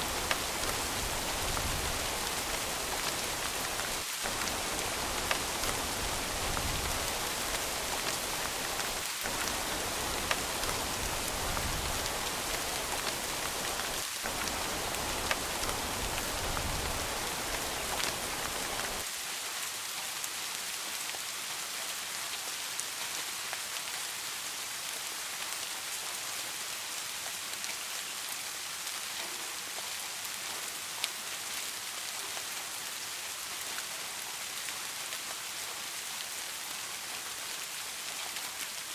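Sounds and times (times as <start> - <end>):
rain drop ticks: 0.0 - 19.1
steady rain hiss: 0.0 - 38.9.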